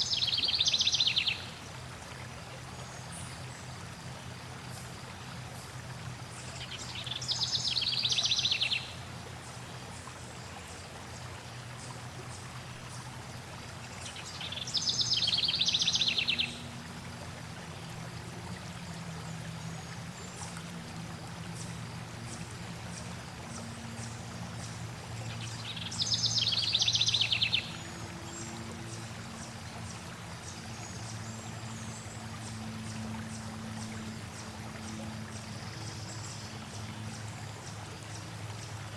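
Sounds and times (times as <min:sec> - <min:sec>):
flowing water: 0:00.0 - 0:38.9
songbird trilling: 0:25.4 - 0:27.7.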